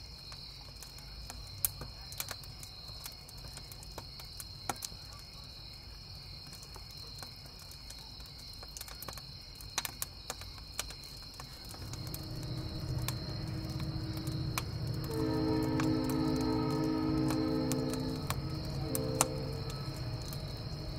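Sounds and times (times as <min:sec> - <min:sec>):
campfire crackling: 0:00.0 - 0:20.9
crickets chirping: 0:09.3 - 0:20.9
distant train rumble: 0:11.5 - 0:20.9
faint low tone: 0:11.6 - 0:20.9.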